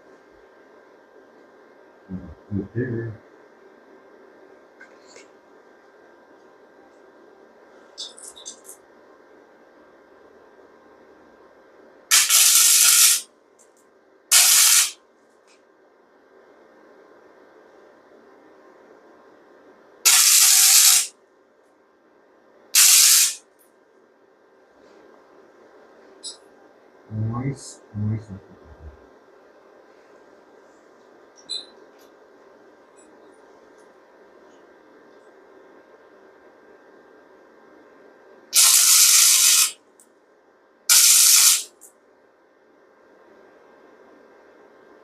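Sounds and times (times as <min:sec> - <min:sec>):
hissing crackling welding bursts: 0:12.1 - 0:13.2, 0:14.3 - 0:15.0, 0:20.1 - 0:21.1, 0:22.8 - 0:23.4, 0:38.6 - 0:39.8, 0:40.9 - 0:41.7.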